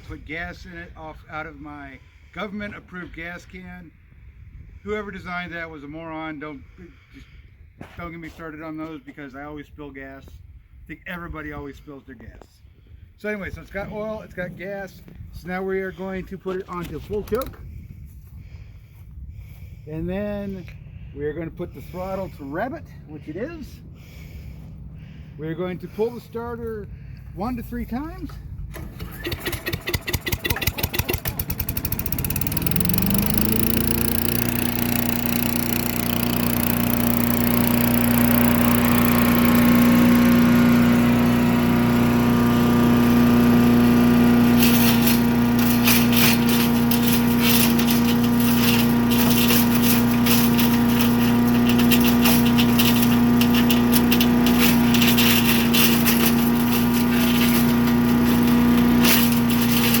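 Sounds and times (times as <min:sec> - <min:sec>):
engine starting and running: 0:13.5 - 1:00.0
irregular clatter: 0:28.2 - 1:00.0.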